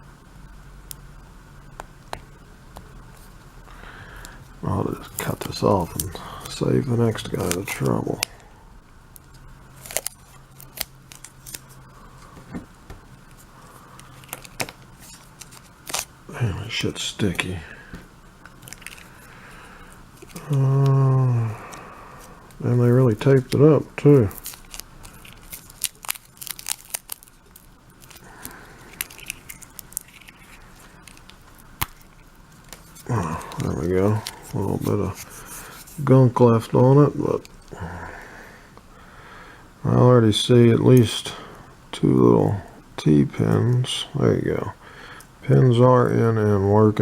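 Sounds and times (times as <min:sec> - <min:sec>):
steady low hum: 0:00.0 - 0:47.0
sticky tape peeling: 0:09.2 - 0:11.8, 0:14.0 - 0:16.1, 0:24.2 - 0:36.1.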